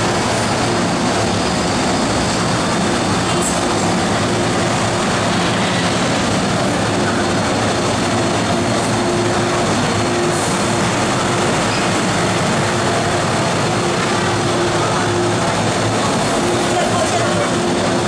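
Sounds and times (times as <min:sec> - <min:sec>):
constant tonal hum: 0:00.0 - 0:18.0
electric train rumble: 0:00.0 - 0:18.0.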